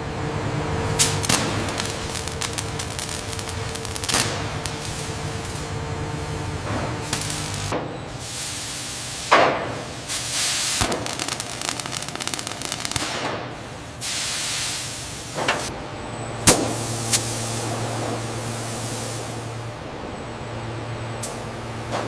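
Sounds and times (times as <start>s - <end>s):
steady low hum: 0.0s - 8.0s, 15.3s - 22.0s
hissing air: 16.4s - 19.8s.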